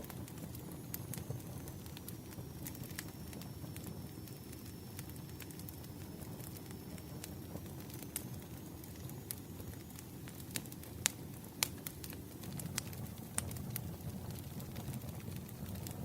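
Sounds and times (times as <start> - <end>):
campfire wood crackling: 0.0 - 16.0
low rumble of flames: 0.0 - 16.0.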